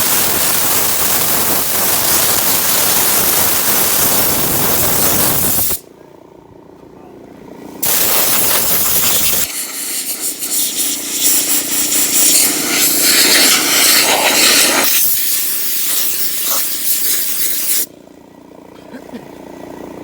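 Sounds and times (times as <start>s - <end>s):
air blower hissing: 0.0s - 5.9s, 7.8s - 17.9s.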